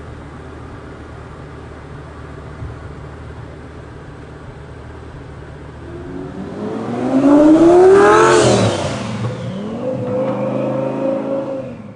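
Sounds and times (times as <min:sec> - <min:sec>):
car engine revving hard: 0:05.8 - 0:11.9.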